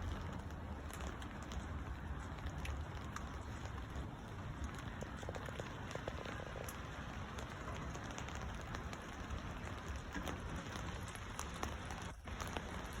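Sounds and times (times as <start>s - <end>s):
light rain hissing: 0.0s - 13.0s
raindrop ticks: 0.0s - 13.0s.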